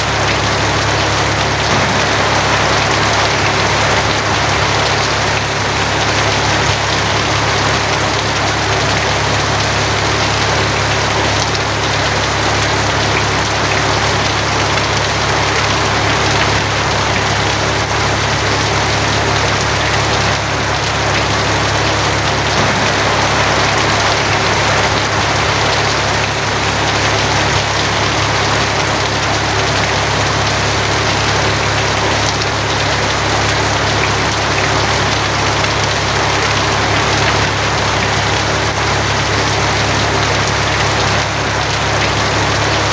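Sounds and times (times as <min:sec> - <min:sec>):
rain on a tin roof: 0:00.0 - 0:42.9
constant low hum: 0:20.8 - 0:28.1.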